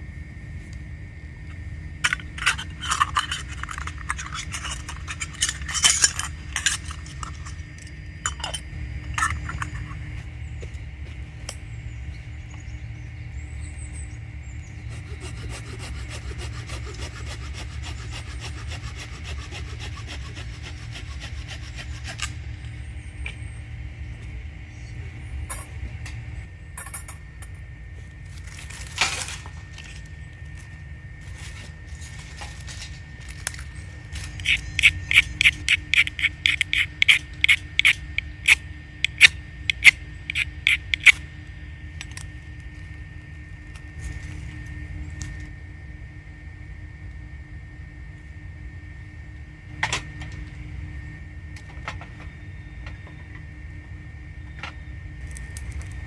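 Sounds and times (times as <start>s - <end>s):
hand saw cutting firewood: 2.1s - 7.6s, 14.8s - 22.6s, 34.2s - 41.2s
scraping on wood: 14.8s - 22.5s.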